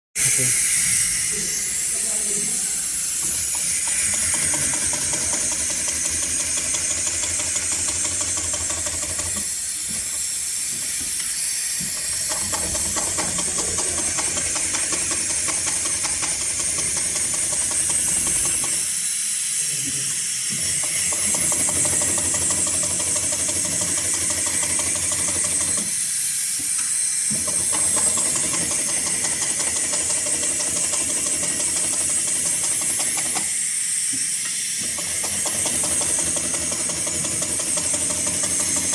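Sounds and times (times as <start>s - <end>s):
sewing machine stitching webbing: 3.8s - 9.5s, 12.1s - 18.8s, 21.0s - 26.0s, 27.3s - 33.4s, 34.8s - 38.9s.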